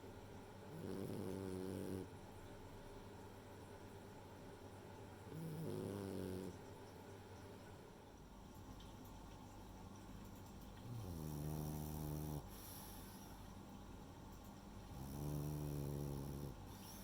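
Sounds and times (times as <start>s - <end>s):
dog snoring: 0.7s - 2.1s, 5.3s - 6.6s, 10.8s - 13.3s, 14.9s - 17.0s.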